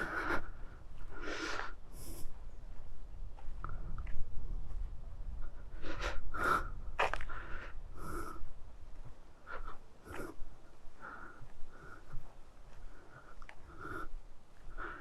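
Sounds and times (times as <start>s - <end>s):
person breathing hard: 0.0s - 2.4s, 5.3s - 8.7s, 9.4s - 15.0s.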